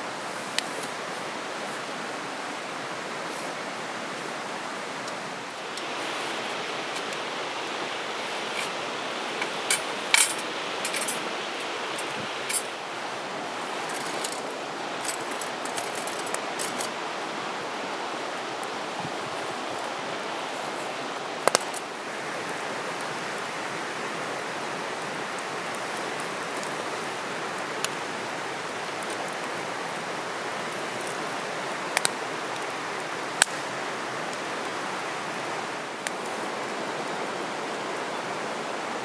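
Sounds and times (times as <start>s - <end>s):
river water rushing: 0.0s - 39.0s
sharp clicks and clinks: 9.4s - 11.2s, 12.0s - 12.8s.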